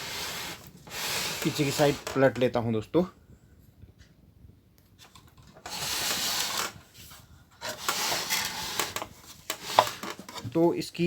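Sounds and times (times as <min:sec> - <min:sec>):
plastic cabinet scraping on bench: 0:00.0 - 0:02.3, 0:05.6 - 0:06.8, 0:07.6 - 0:10.4.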